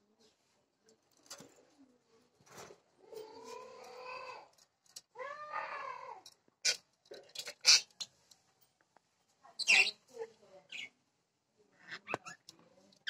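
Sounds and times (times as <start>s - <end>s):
cat meowing: 5.2s - 6.2s.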